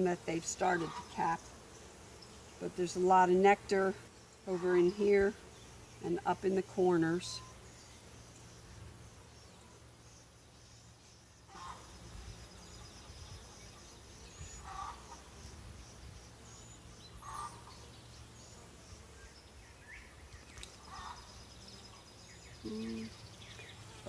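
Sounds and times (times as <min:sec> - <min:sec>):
insects droning: 0:00.0 - 0:24.0
bird calling: 0:17.2 - 0:17.9, 0:19.9 - 0:21.4.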